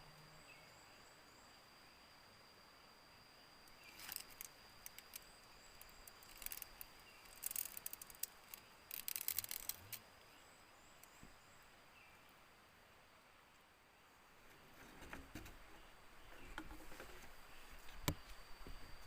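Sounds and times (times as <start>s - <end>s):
high-pitched insect drone: 0.0s - 10.0s
dry vegetation rustling: 3.8s - 10.0s.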